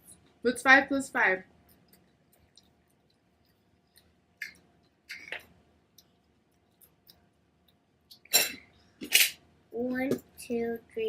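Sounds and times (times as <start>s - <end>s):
faint clicks and ticks: 1.6s - 8.3s.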